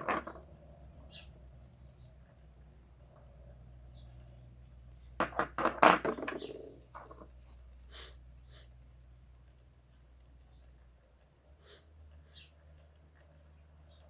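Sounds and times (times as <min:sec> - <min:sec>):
knocks and clatter: 0:05.2 - 0:07.3.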